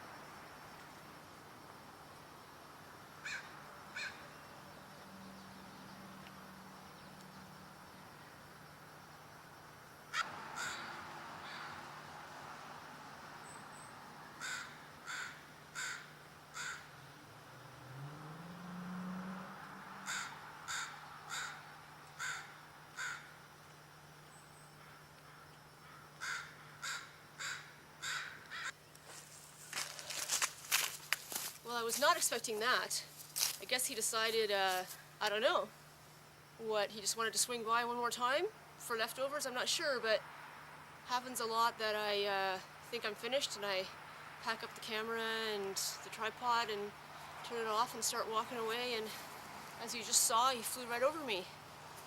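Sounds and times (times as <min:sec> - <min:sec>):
faint outdoor background hiss: 0:00.0 - 0:52.0
crow cawing: 0:03.2 - 0:04.2, 0:10.1 - 0:11.9, 0:14.4 - 0:16.9, 0:20.0 - 0:23.3, 0:24.8 - 0:28.7.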